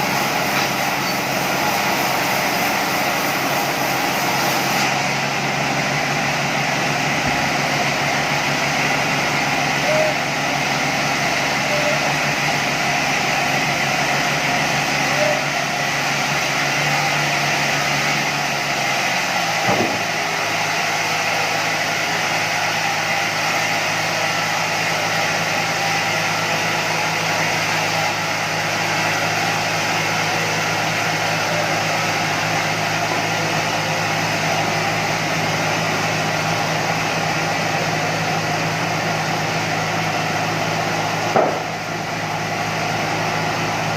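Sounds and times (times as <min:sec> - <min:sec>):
sawmill machinery humming: 0:00.0 - 0:43.9
machinery knock: 0:41.3 - 0:41.7.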